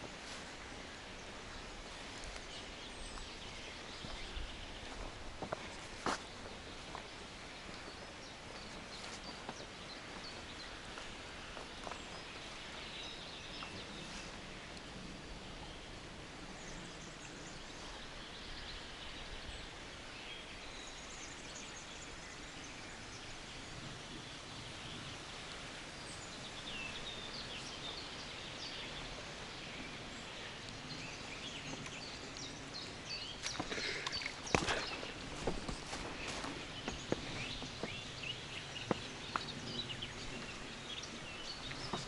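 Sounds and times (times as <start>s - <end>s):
birds singing and calling: 0.0s - 42.0s
footsteps on forest floor: 1.8s - 12.8s, 33.2s - 39.5s.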